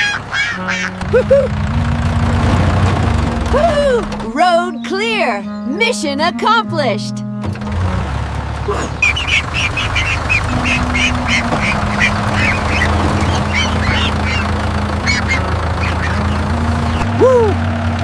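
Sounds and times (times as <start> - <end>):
duck quacking rapidly: 0.0 - 1.5, 8.7 - 17.2
low hum: 1.0 - 4.4, 9.0 - 18.0.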